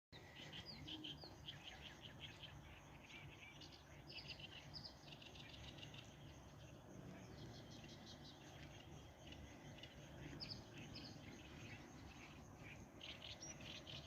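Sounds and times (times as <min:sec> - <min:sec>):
faint small birds chirping: 0:00.1 - 0:14.0
low steady hum: 0:00.2 - 0:14.0.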